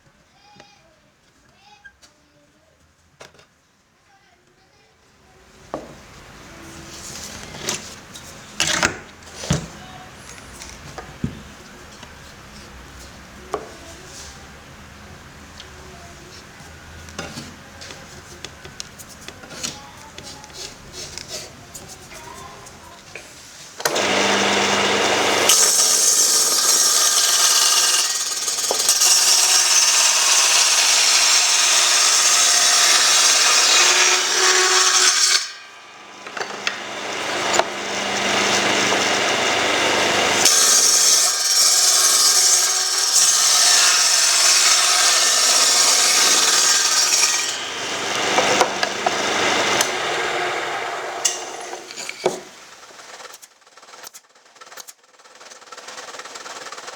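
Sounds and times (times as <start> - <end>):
power tool running: 5.7 - 12.9, 23.8 - 56.9.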